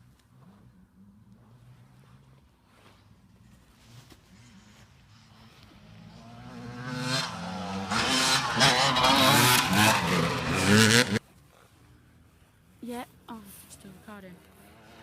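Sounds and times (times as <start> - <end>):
motocross bike engine revving: 4.2 - 11.2.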